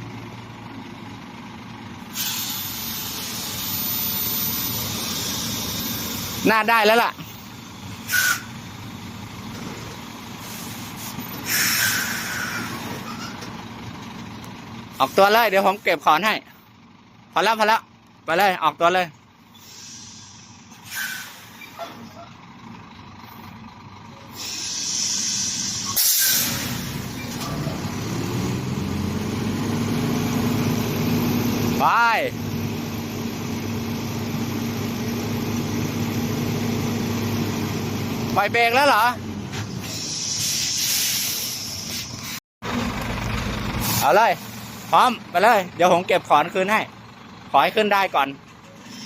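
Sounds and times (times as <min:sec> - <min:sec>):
truck engine hum: 0:00.0 - 0:49.0
air brakes hissing: 0:02.0 - 0:06.4, 0:07.2 - 0:08.8, 0:10.3 - 0:13.5, 0:19.4 - 0:22.2, 0:24.2 - 0:27.8, 0:39.5 - 0:42.4, 0:43.8 - 0:45.1, 0:48.6 - 0:49.0.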